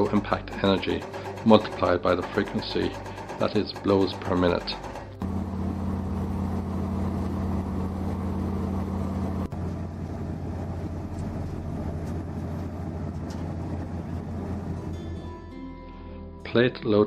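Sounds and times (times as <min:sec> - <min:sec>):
diesel machinery engine drone: 0:05.0 - 0:15.4.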